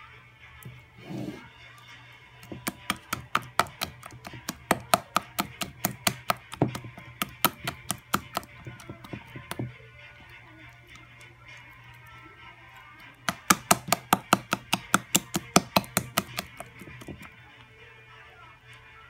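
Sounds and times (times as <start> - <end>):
wet dough slapping in a bowl: 2.4 - 9.8, 13.2 - 17.4.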